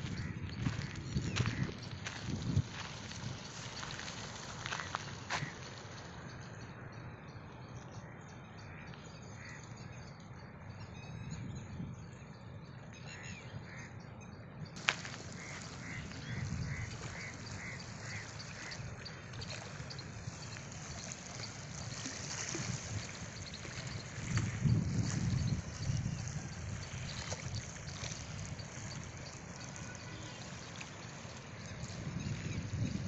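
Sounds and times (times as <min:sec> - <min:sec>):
water: 0:00.0 - 0:33.0
wind: 0:00.0 - 0:33.0
bird calling: 0:14.8 - 0:32.6.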